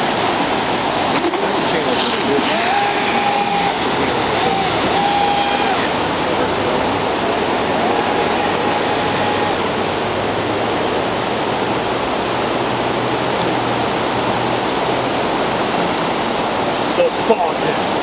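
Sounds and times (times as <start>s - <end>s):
water rushing over dam: 0.0s - 18.0s
faint high whine: 2.3s - 10.0s.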